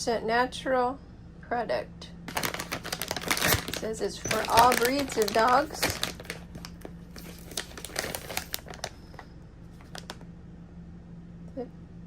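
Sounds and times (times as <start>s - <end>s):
plastic bag crinkling: 2.3s - 10.2s.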